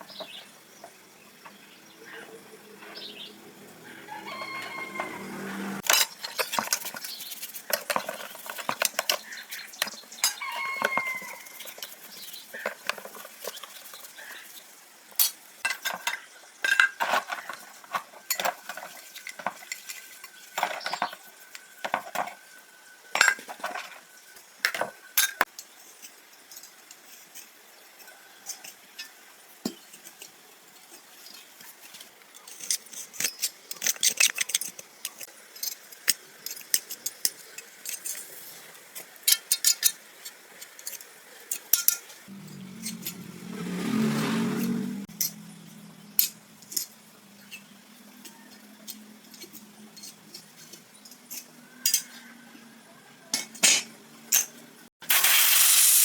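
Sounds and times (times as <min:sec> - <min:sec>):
chicken calling: 0:03.7 - 0:05.8, 0:10.2 - 0:11.7
metal tools clinking: 0:05.8 - 0:13.8, 0:15.2 - 0:22.4, 0:39.3 - 0:43.4, 0:46.2 - 0:52.2, 0:53.4 - 0:54.7.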